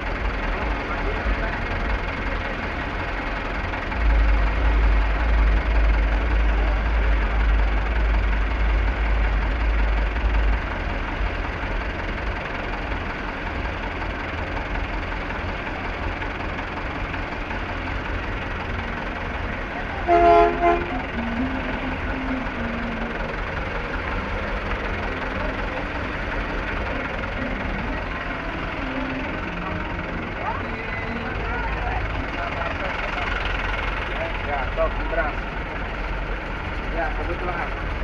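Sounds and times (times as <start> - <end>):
crowd chatter: 0.0 - 38.0
truck engine idling: 0.0 - 38.0
loud pitched tone: 20.0 - 32.1.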